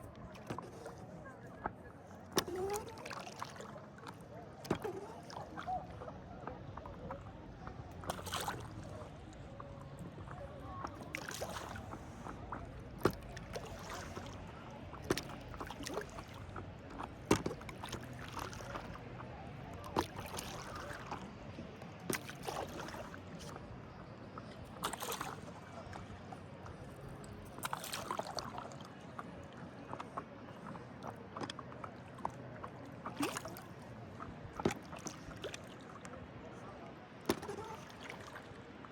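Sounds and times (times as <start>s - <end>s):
faint voices: 0.0s - 38.9s
paddle splashing water: 0.0s - 38.9s
paddle knocking on hull: 17.1s - 18.6s.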